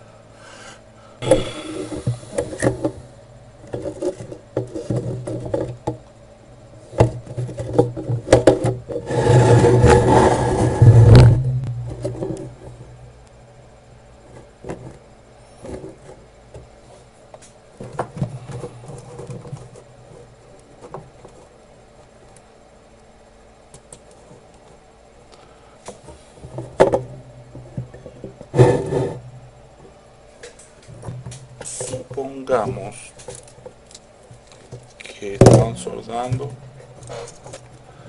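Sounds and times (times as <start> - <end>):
faint steady hum: 0.0 - 38.0
loud rubbing scraping noise: 8.9 - 11.6, 28.5 - 29.2.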